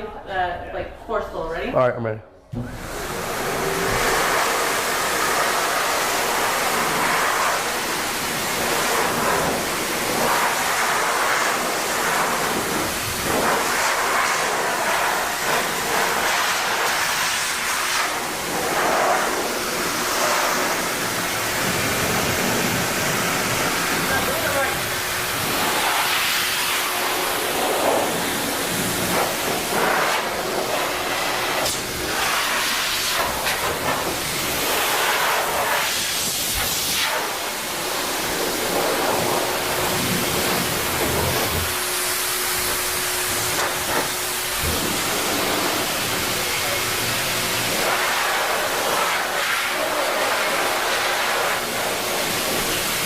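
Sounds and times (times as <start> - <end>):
pet dryer blowing air: 2.6 - 53.0.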